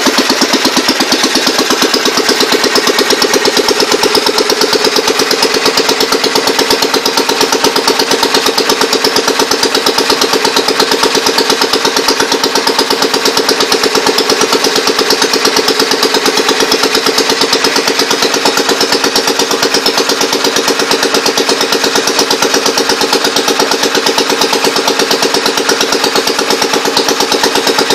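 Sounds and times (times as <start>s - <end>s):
engine-driven compressor running: 0.0s - 27.9s.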